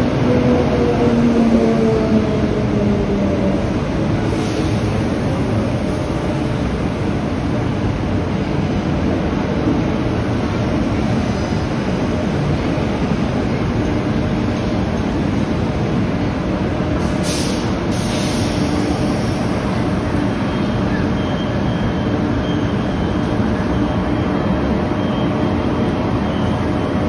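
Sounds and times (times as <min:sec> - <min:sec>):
electric train rumble and hum: 0:00.0 - 0:27.0
air hisses: 0:17.2 - 0:19.6.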